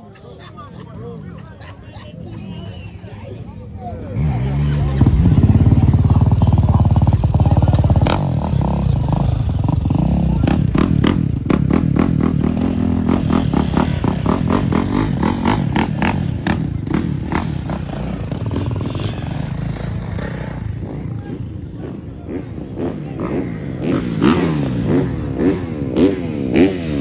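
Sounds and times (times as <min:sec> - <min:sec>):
dirt bike engines running: 0:00.1 - 0:27.0.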